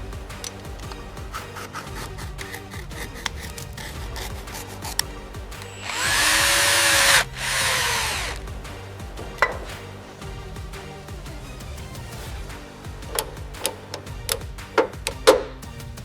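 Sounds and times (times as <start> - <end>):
power tool running: 5.7 - 8.5.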